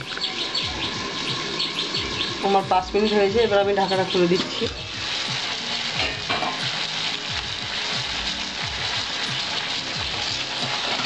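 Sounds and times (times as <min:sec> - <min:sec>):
vegetables sizzling in a pan: 0:00.0 - 0:11.0
background music with a beat: 0:04.6 - 0:11.0.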